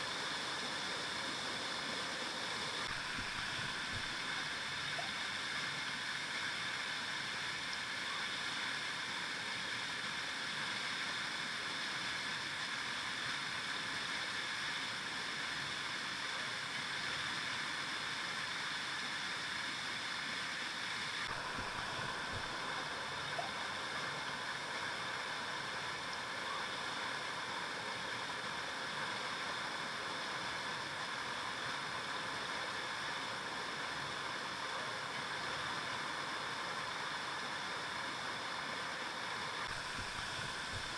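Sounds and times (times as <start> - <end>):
river water flowing over rocks: 20.0 - 40.9.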